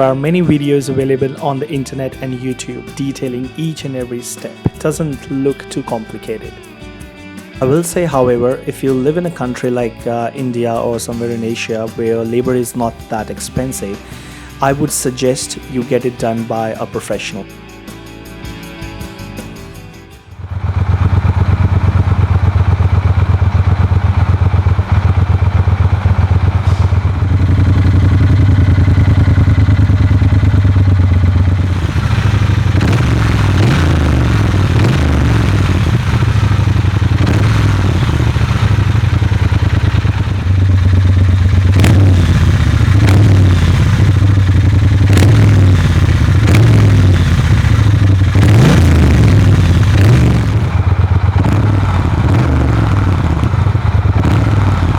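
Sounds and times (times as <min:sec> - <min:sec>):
motorcycle exhaust deep low note: 0:00.0 - 0:02.2, 0:20.2 - 0:54.9.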